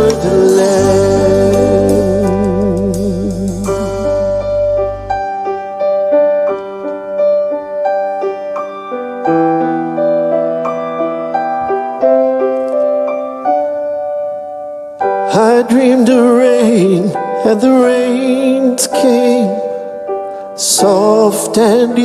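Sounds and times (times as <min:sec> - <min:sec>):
gentle piano melody: 0:00.0 - 0:22.0.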